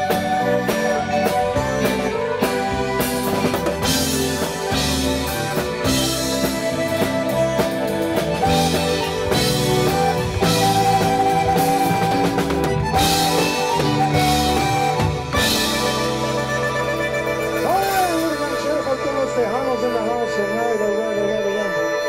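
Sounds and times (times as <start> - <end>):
drum kit beat: 0.0 - 20.1
accordion held notes: 0.0 - 22.0.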